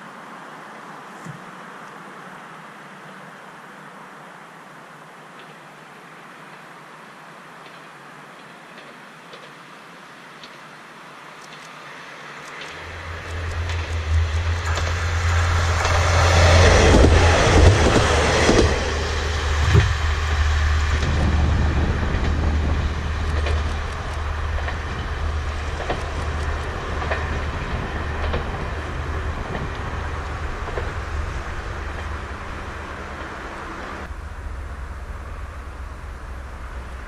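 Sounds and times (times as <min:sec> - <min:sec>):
diesel railcar engine rumble: 0:11.8 - 0:37.0
wheels clicking over rail joints: 0:12.4 - 0:37.0.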